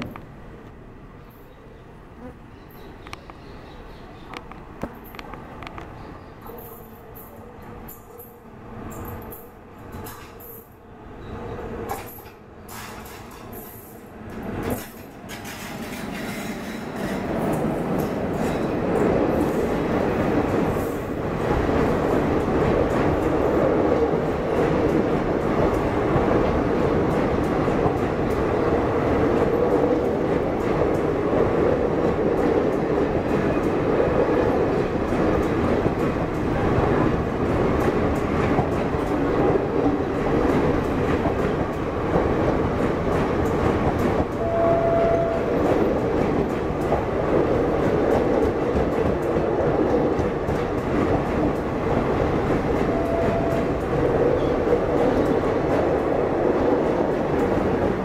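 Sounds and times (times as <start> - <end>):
train coaches rushing past: 2.8 - 58.0
wheels clattering over rail joints: 11.8 - 21.1
brief steady tone: 44.4 - 45.5, 52.8 - 53.7.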